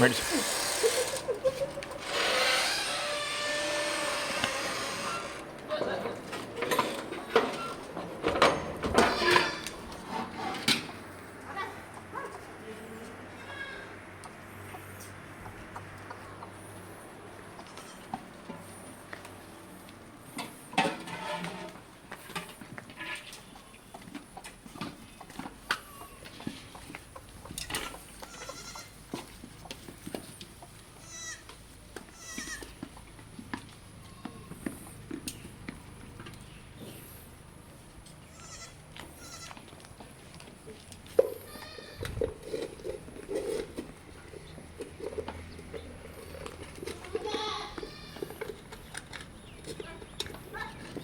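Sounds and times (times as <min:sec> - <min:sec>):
goats bleating: 0:27.8 - 0:29.0, 0:31.0 - 0:32.7, 0:38.2 - 0:39.6, 0:41.4 - 0:42.1, 0:47.2 - 0:48.4.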